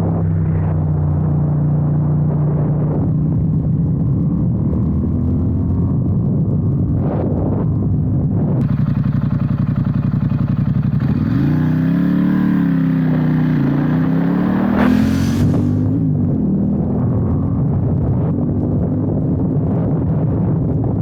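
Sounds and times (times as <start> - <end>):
motorcycle engine accelerating: 8.6 - 20.1.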